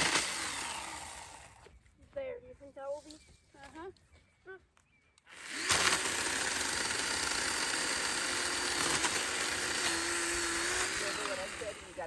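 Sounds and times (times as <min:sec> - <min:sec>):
chainsaw cutting branches: 0:00.0 - 0:01.7, 0:05.3 - 0:12.0.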